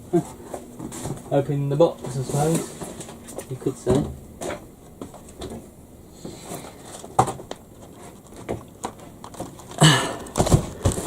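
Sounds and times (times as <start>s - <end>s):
hands tapping cardboard box: 8.4s - 11.0s.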